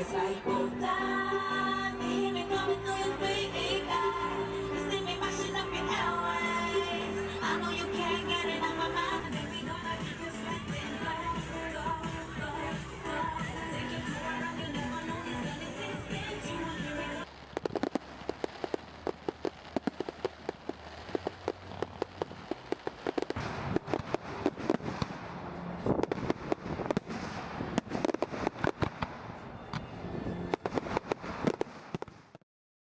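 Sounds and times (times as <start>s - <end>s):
fireworks crackling and popping: 1.1s - 32.4s
loud firework bangs: 7.4s - 32.4s.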